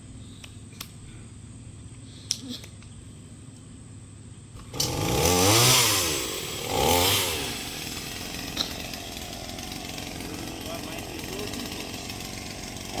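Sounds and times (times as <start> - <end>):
chainsaw revving: 4.6 - 13.0.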